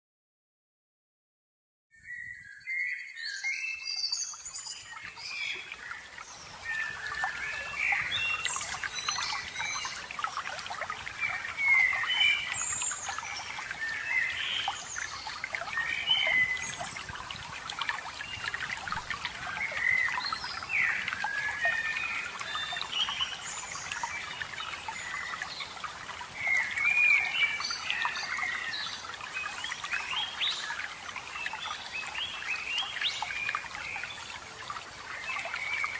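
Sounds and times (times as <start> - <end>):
trickle of running water: 3.8 - 35.9
songbirds chirping and singing: 11.0 - 17.1.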